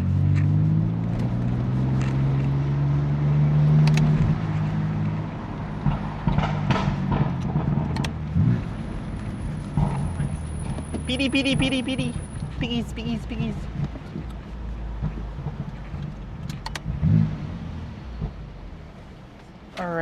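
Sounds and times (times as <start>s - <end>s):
car engine droning: 0.0s - 20.0s
street and tyre noise: 0.0s - 20.0s
sharp clicks: 3.8s - 4.2s, 5.8s - 8.2s, 15.0s - 16.9s.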